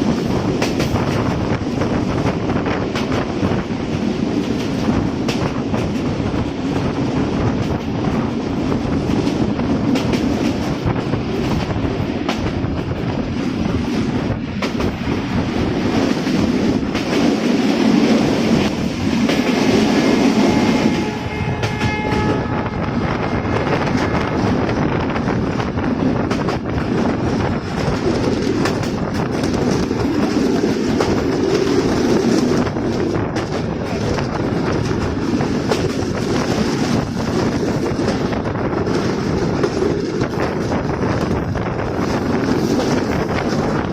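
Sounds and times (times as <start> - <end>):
train rumbling on rails: 0.0 - 43.9
locomotive horn: 20.3 - 24.6
wheels clicking over rail joints: 23.9 - 43.9.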